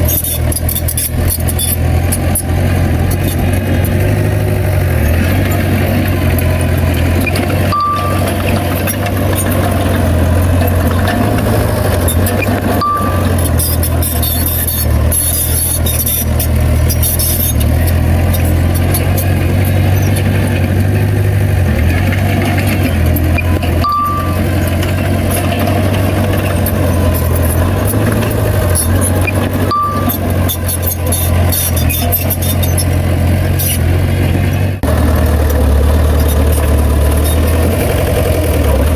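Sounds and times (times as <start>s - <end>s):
heavy diesel engine droning: 0.0s - 38.9s
machine rattling: 0.0s - 38.9s
short high beeps: 7.2s - 9.5s, 12.5s - 16.3s, 23.3s - 25.8s, 29.0s - 32.8s.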